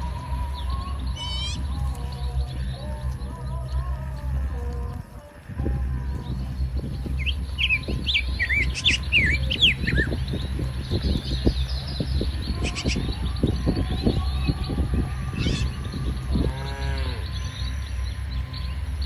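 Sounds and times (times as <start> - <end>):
low rumble: 0.0 - 19.0
small birds chirping: 0.0 - 19.0.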